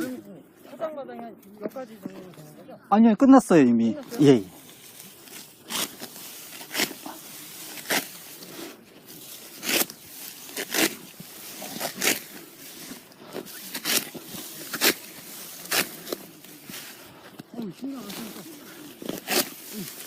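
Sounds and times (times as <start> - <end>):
sickle cutting rice stalks: 4.2 - 20.0.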